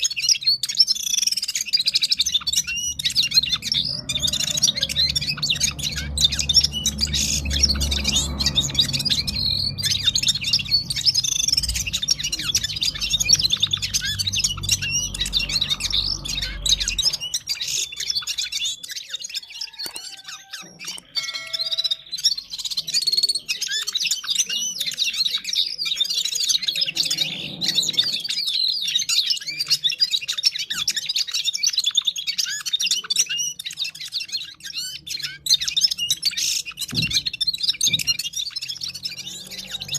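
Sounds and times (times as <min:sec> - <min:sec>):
songbird twittering: 0:00.0 - 0:39.9
low background rumble: 0:02.1 - 0:18.7.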